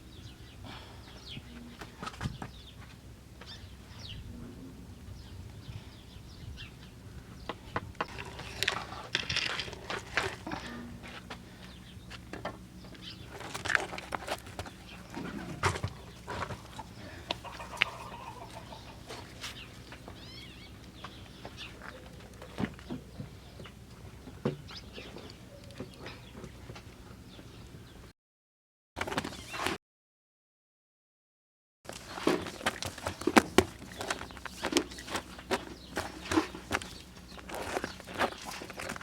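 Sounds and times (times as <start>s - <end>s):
chickens clucking: 11.7s - 27.1s.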